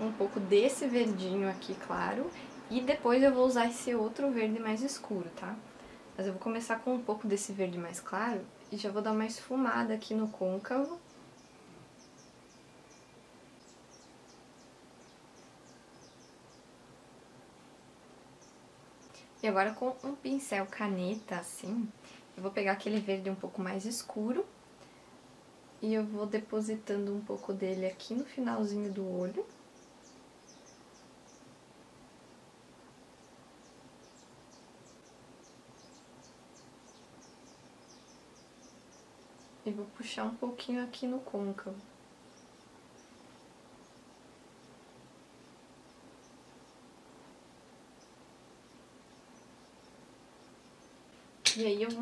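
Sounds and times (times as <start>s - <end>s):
faint steady hiss: 0.0s - 52.0s
small birds chirping: 0.0s - 52.0s.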